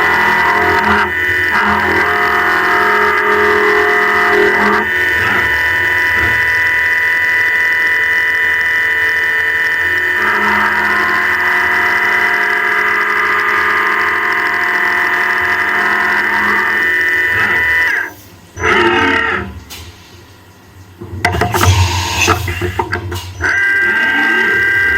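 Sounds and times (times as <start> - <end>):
milling machine high whine: 0.0 - 19.6, 21.2 - 24.9
short burst of metal cutting: 21.4 - 22.8.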